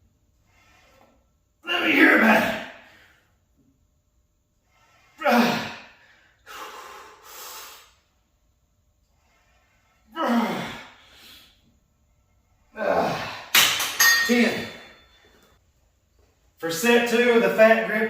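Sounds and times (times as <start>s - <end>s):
man breathing hard: 4.6s - 8.2s, 9.1s - 11.7s
man exhaling forcefully: 4.8s - 8.0s.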